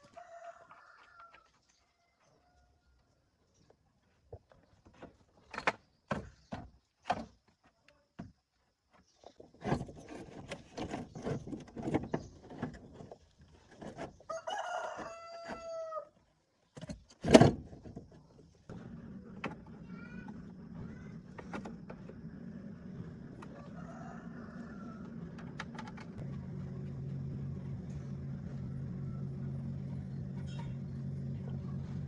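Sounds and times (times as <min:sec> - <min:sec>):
rooster crowing: 0:00.0 - 0:03.0, 0:14.3 - 0:16.1, 0:23.4 - 0:25.4, 0:28.4 - 0:29.9
low steady hum: 0:18.7 - 0:32.0.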